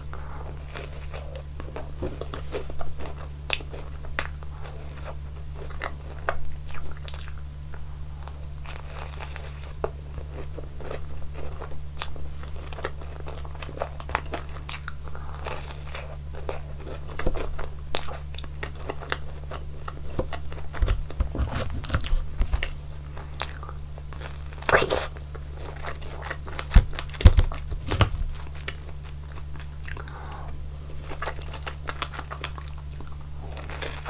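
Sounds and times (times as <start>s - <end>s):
chewing and crunching: 0.0s - 34.0s
wet mouth clicks: 24.6s - 25.2s.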